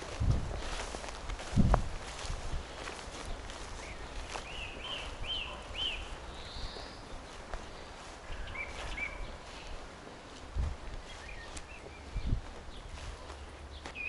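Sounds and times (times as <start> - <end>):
footsteps on forest path: 0.0 - 14.0
bird chirping: 3.2 - 9.8, 11.0 - 14.0.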